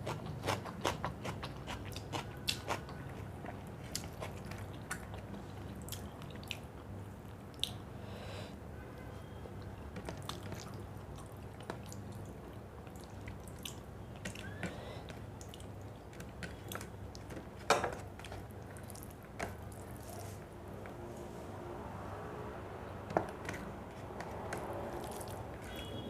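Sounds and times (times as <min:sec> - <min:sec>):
wet chewing: 0:00.0 - 0:06.6, 0:24.6 - 0:25.9.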